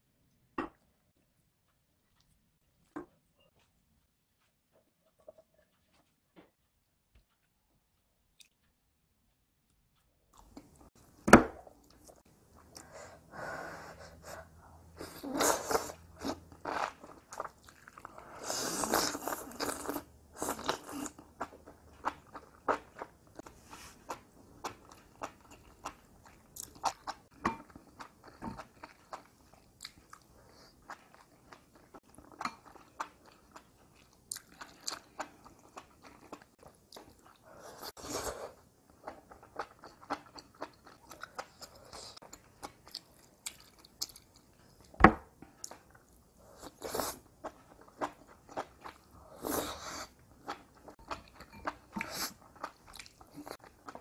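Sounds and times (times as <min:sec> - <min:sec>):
chewing crunchy food: 0:15.6 - 0:54.0.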